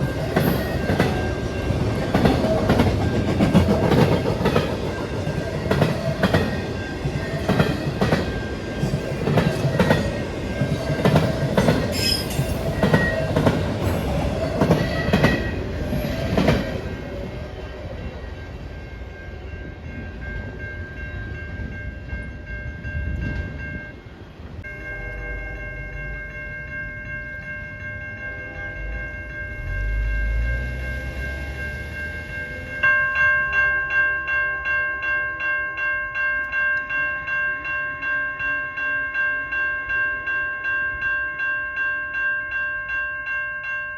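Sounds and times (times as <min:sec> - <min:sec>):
train wheels clicking on rails: 0:00.0 - 0:17.3.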